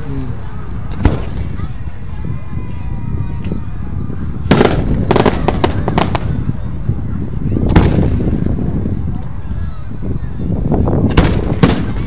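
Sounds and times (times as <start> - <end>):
low rumble: 0.0 - 12.0
fireworks bangs: 0.9 - 1.7, 4.5 - 6.4, 7.7 - 8.4, 11.1 - 12.0
fireworks crackling: 4.5 - 6.6, 11.1 - 12.0.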